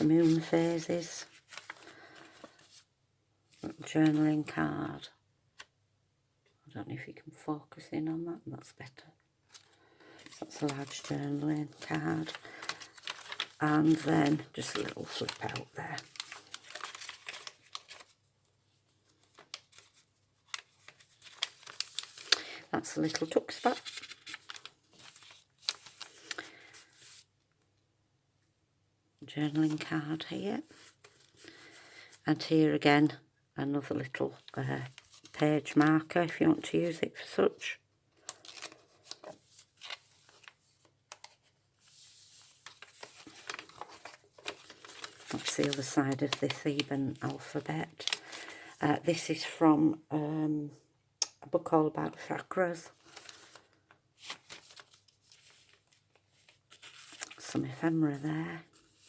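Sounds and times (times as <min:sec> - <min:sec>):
paper rustling: 0:00.0 - 0:02.9, 0:09.5 - 0:18.3, 0:18.9 - 0:27.3, 0:30.7 - 0:32.2, 0:34.4 - 0:35.8, 0:38.2 - 0:48.8, 0:52.8 - 0:59.0.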